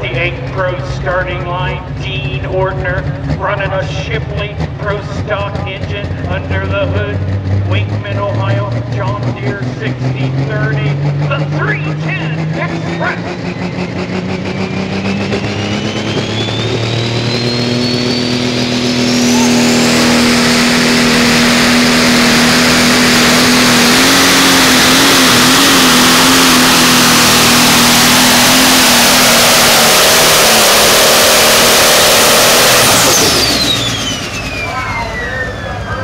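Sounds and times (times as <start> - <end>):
pulling tractor engine roaring: 0.0 - 36.0
turbo whine rising in pitch: 10.4 - 36.0.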